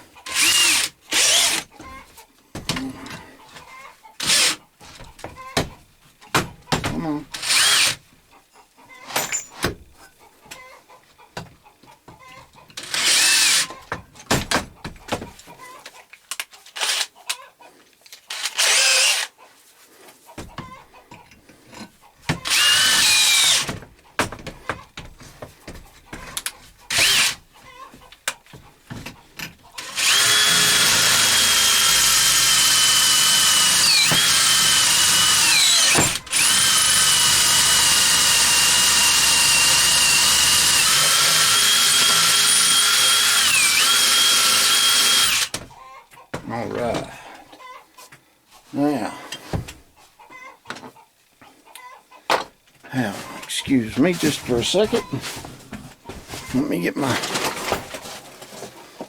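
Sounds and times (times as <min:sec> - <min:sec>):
electric drill boring into metal: 0:00.3 - 0:01.7, 0:04.2 - 0:04.6, 0:07.4 - 0:08.0, 0:12.8 - 0:13.7, 0:18.3 - 0:19.3, 0:22.4 - 0:23.7, 0:26.9 - 0:27.4, 0:29.8 - 0:45.6.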